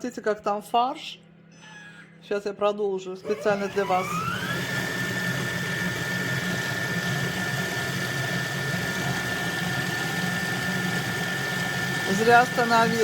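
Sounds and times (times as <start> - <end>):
food processor grinding: 3.2 - 13.0.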